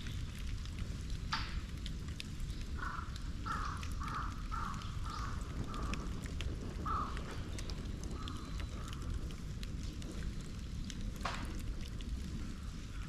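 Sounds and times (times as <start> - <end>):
bonfire crackling: 0.0 - 13.0
crow cawing: 2.8 - 6.1, 6.8 - 7.2.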